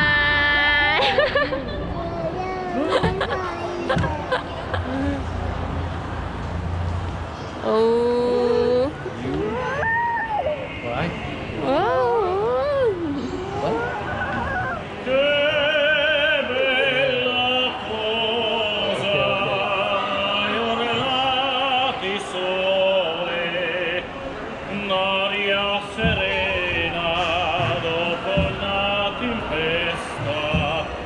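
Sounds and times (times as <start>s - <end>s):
person singing operatic song: 10.4s - 13.8s, 15.0s - 24.1s, 24.7s - 31.0s.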